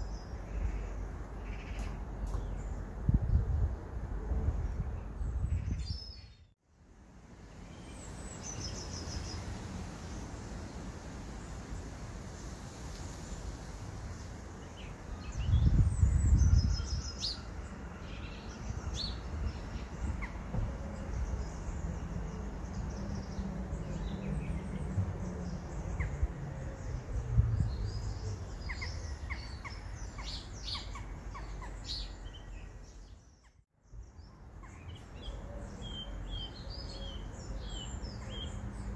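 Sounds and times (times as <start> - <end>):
birds chirping and calling: 18.1 - 33.6, 34.6 - 38.9.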